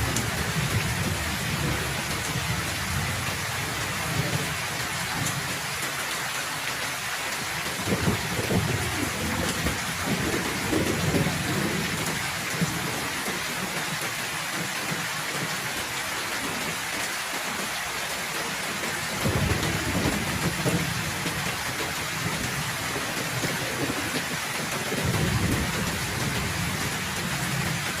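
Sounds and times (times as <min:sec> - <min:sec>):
thunder rumbling: 0:00.0 - 0:05.5, 0:07.7 - 0:13.1, 0:19.1 - 0:28.0
heavy rain falling: 0:00.0 - 0:28.0.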